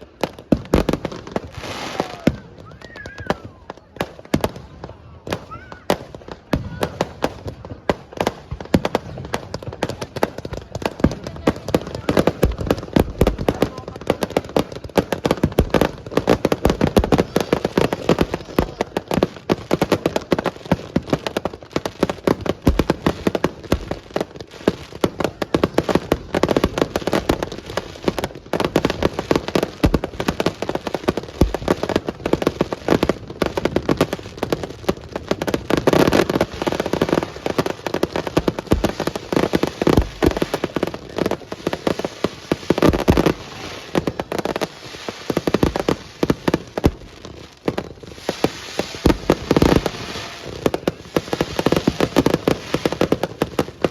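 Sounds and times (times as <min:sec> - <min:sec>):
fireworks crackling: 0:00.0 - 0:53.9.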